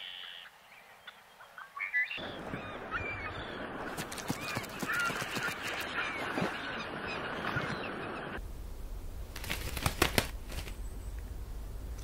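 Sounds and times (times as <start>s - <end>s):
flock of birds calling: 0.0s - 8.4s.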